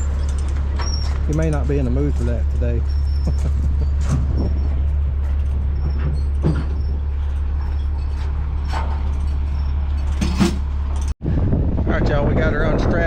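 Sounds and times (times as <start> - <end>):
truck engine idling: 0.0 - 11.1
sharp metal clanks: 5.3 - 11.2.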